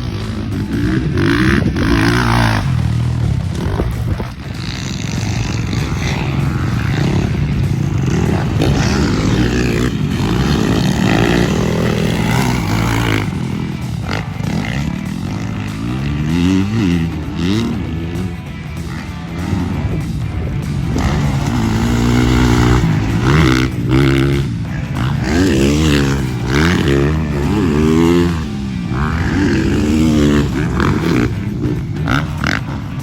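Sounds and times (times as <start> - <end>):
dirt bike engine revving: 0.0 - 33.0
music: 0.0 - 33.0.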